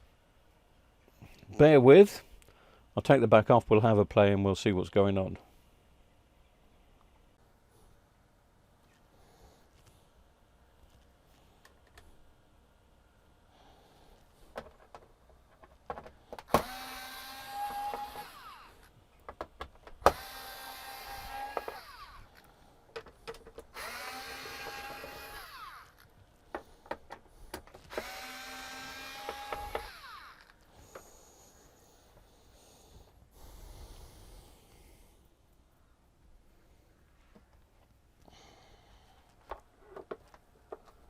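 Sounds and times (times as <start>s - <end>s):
electric screwdriver motor whine: 16.5s - 18.9s, 20.1s - 22.4s, 23.7s - 26.0s, 27.9s - 30.6s
handling clicks and taps: 19.2s - 20.2s, 22.9s - 23.7s.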